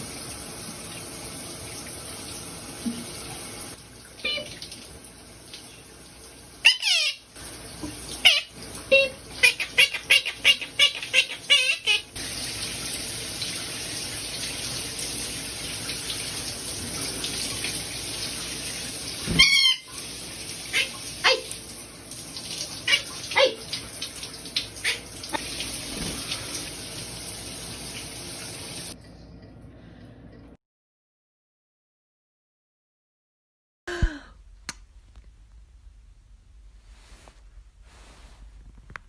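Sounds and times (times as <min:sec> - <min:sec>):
tap water running: 0:00.0 - 0:30.5.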